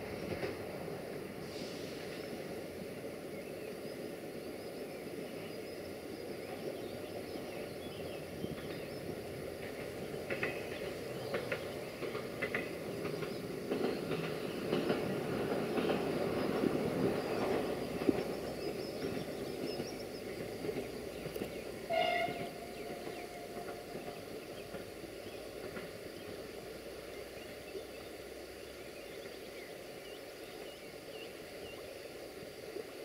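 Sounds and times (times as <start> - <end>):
diesel train running past: 0.0 - 33.0
wheels clicking over rail joints: 6.5 - 27.9.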